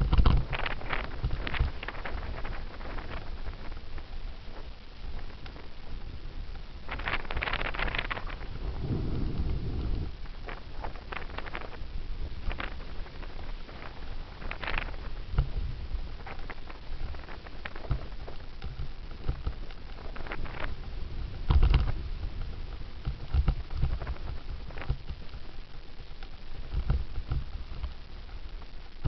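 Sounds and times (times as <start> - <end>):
bike clicks and rattles: 0.0 - 3.6
wind buffeting microphone: 0.0 - 25.0
low rumble: 7.8 - 13.2.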